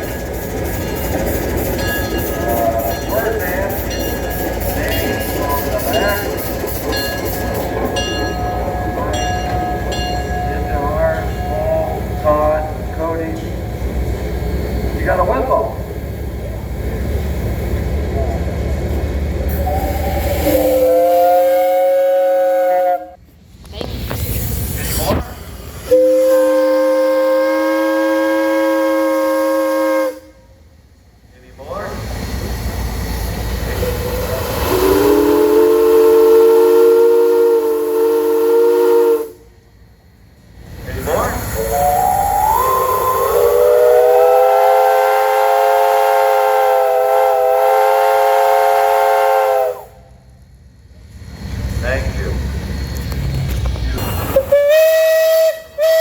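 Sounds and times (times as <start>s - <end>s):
steam whistle blast: 19.5s - 23.2s, 25.8s - 30.6s, 34.2s - 39.5s, 41.6s - 50.1s, 54.3s - 56.0s.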